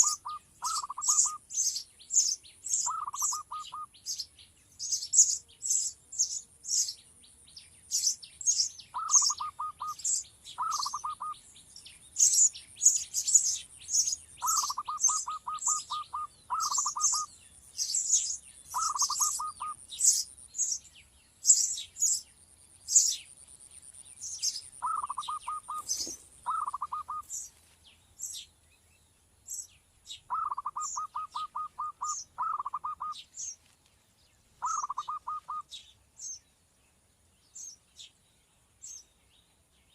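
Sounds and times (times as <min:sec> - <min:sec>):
baby sparrow chirping: 0:00.0 - 0:07.0, 0:07.8 - 0:27.5, 0:28.2 - 0:28.5, 0:29.5 - 0:33.6, 0:34.6 - 0:36.5, 0:37.5 - 0:38.2
lower bird call: 0:00.0 - 0:07.0, 0:07.9 - 0:22.3, 0:24.2 - 0:27.5, 0:29.5 - 0:33.6, 0:34.6 - 0:36.4.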